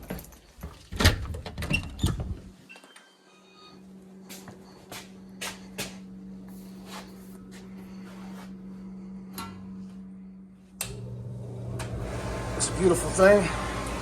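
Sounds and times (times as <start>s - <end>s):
air handler humming: 3.8s - 14.0s.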